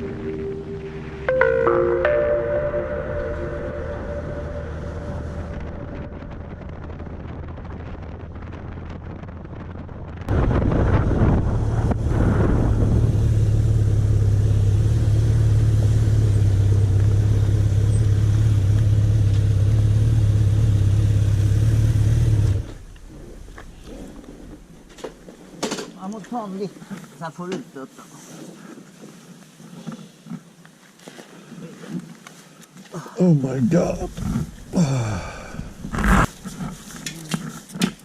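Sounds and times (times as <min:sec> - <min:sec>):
mallet percussion music: 0:00.0 - 0:05.0
motorcycle engine running: 0:11.5 - 0:22.9.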